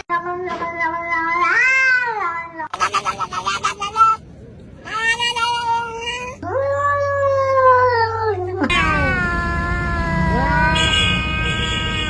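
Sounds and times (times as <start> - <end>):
cats meowing: 2.8 - 4.2, 4.8 - 6.4.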